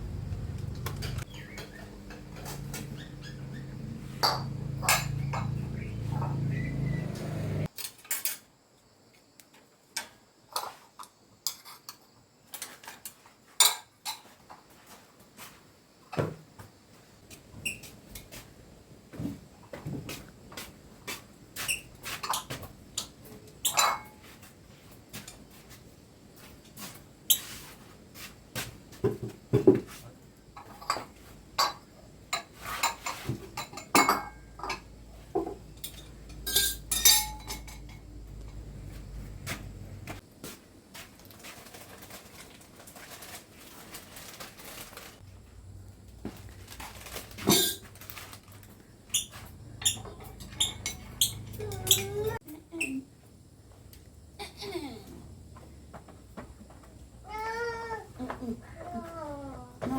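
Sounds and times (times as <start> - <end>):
clinks and knocks of hard objects: 4.1 - 6.6, 21.7 - 24.5, 30.6 - 40.2, 46.3 - 52.4.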